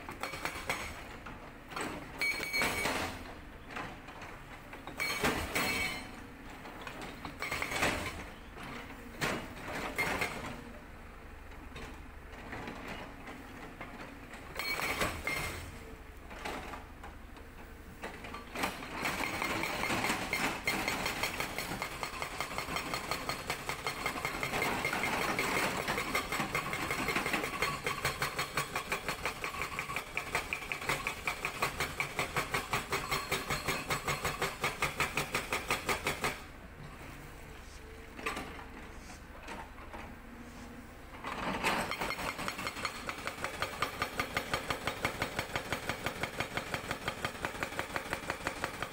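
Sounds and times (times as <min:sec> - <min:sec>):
hydraulic breaker hammering rock: 0:00.0 - 0:01.1, 0:18.5 - 0:36.5, 0:41.2 - 0:48.9
excavator engine running: 0:00.0 - 0:48.9.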